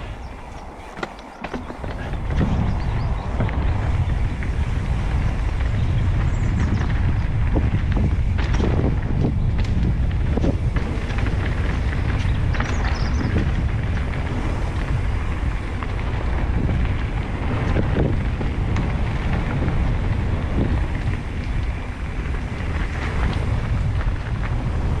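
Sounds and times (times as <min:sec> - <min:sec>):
bike knocks and rattles: 0:00.0 - 0:02.7
bike tyres rumbling on rough trail: 0:00.0 - 0:25.0
wind buffeting microphone: 0:00.0 - 0:25.0.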